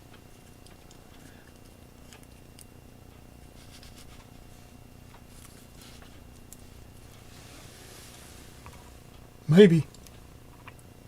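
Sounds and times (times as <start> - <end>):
low steady hum: 0.0 - 11.0
small clicks and rustles of handling: 0.1 - 7.3.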